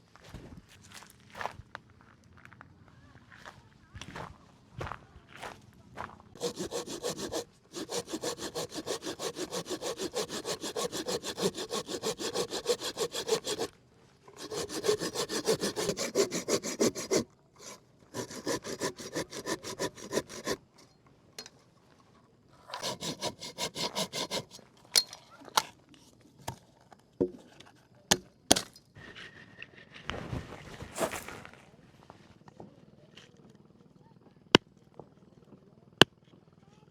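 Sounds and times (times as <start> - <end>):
hand saw cutting wood: 6.4 - 20.8, 22.6 - 24.8.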